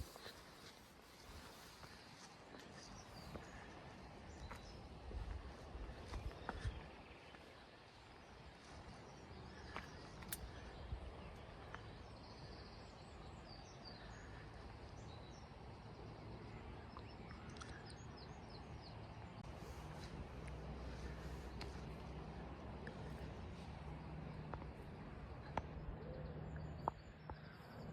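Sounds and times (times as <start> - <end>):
songbird chirps: 0.0 - 27.9
low steady rumble: 8.2 - 27.9
light clicks: 9.7 - 11.9.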